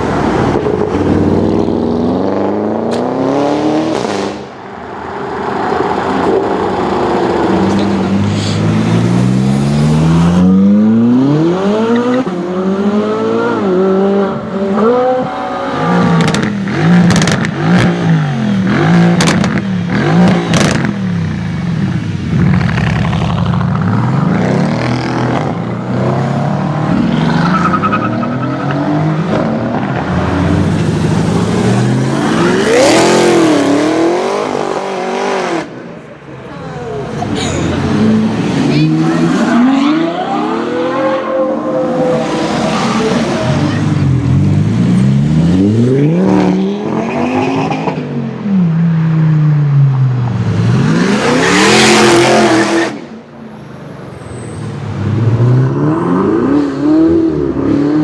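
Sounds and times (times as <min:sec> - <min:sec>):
car engine revving: 0:05.3 - 0:35.8.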